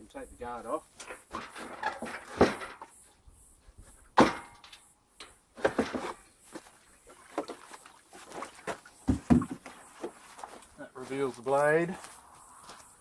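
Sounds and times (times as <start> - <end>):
metal guard clanking: 1.0 - 2.9, 4.2 - 6.2.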